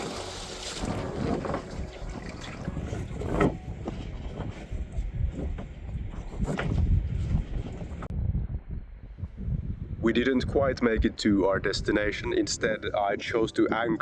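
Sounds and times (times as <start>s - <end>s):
water around boat hull: 0.0s - 8.1s
wind rumbling on microphone: 0.0s - 14.0s.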